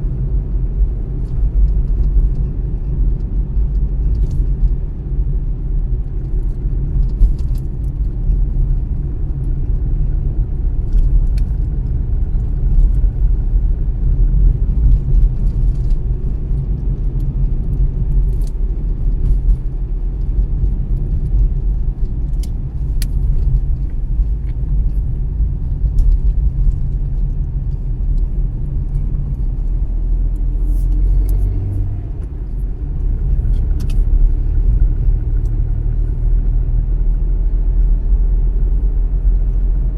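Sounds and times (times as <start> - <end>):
car engine and tyres rumble: 0.0 - 39.9.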